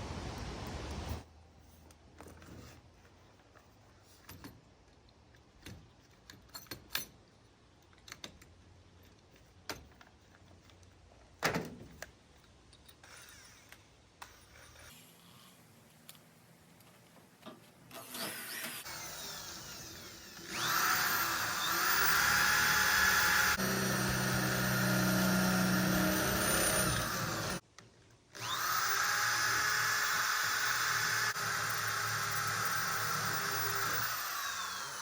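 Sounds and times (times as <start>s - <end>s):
power drill drilling: 17.9s - 27.6s, 28.4s - 35.0s.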